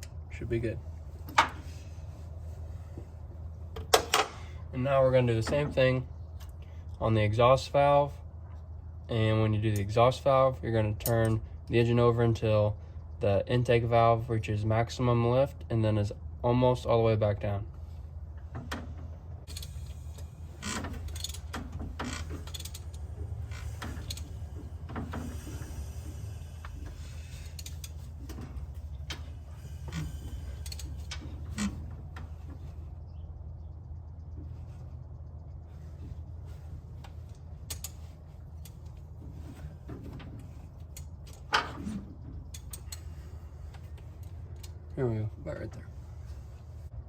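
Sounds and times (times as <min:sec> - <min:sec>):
steady low hum: 0:00.0 - 0:47.0
engine clunk: 0:18.3 - 0:44.9
ratchet wrench clicking: 0:19.5 - 0:21.5, 0:22.1 - 0:24.3, 0:25.4 - 0:28.0, 0:29.7 - 0:31.2.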